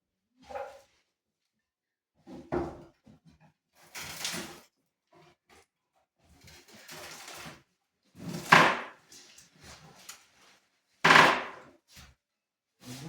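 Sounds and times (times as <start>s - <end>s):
loud bangs of wood: 8.4s - 9.0s, 11.1s - 11.6s
wood scraping and rustling: 11.1s - 11.6s.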